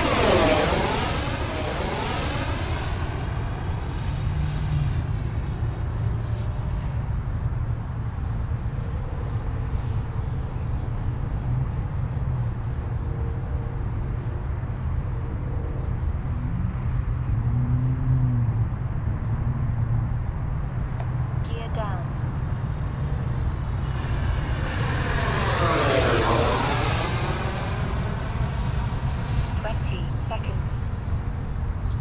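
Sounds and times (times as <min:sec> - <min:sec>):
electric fan motor whine: 0:00.0 - 0:17.3, 0:22.2 - 0:32.0
steady low rumble: 0:18.4 - 0:32.0.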